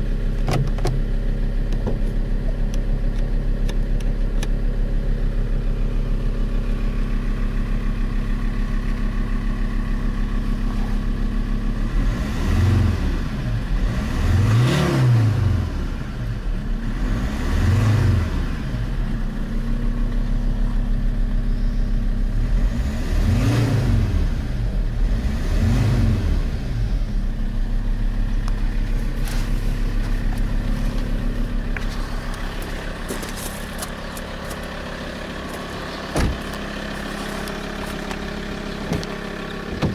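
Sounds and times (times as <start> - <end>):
diesel car engine revving: 0.0 - 39.9.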